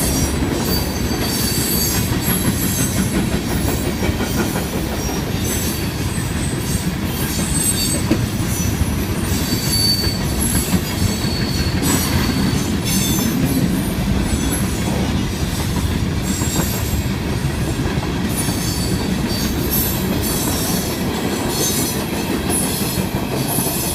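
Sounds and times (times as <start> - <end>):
train cars rumbling on rails: 0.0 - 23.9
wheel squeals: 0.6 - 3.7, 6.4 - 13.4.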